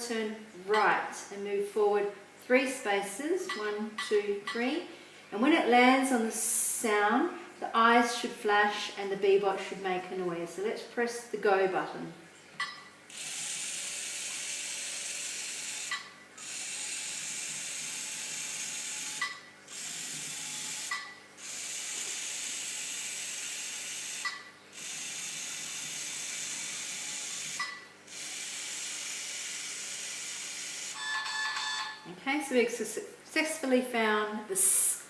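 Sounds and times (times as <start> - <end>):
toy robot motors whirring: 13.1 - 31.0.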